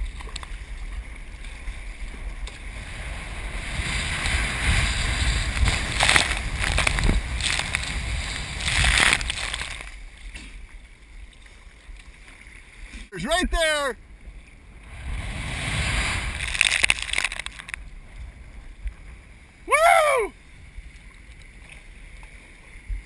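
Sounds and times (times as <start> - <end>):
ocean wave breaking: 1.5 - 10.0, 14.6 - 18.5.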